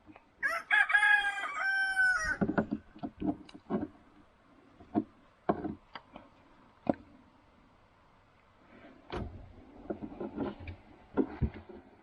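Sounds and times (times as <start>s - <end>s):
rooster crowing: 0.4s - 2.4s
irregular knocks and taps: 2.4s - 4.0s, 4.8s - 6.1s.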